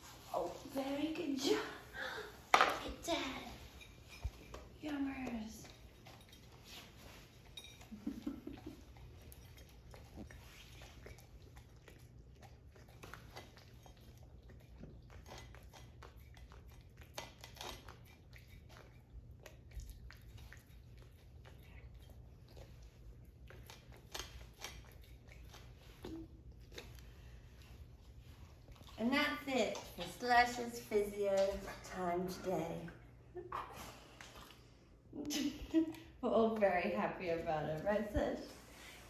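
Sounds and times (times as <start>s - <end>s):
dog chewing crunchy treat: 2.8s - 31.9s.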